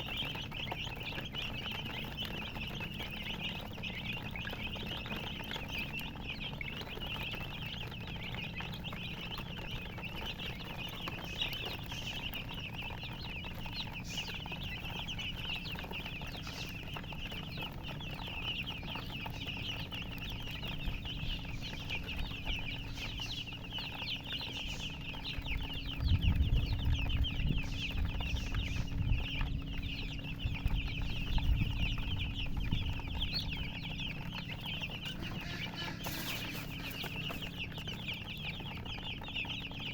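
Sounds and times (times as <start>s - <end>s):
chicks peeping: 0.0s - 39.9s
low rumbling thumps: 19.4s - 39.9s.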